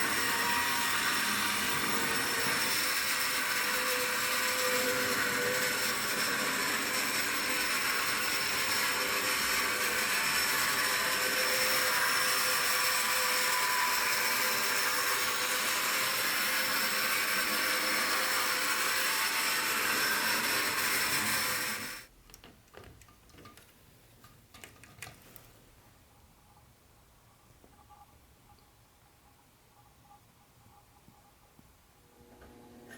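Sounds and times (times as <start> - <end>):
model train motor whirring: 0.0 - 22.1.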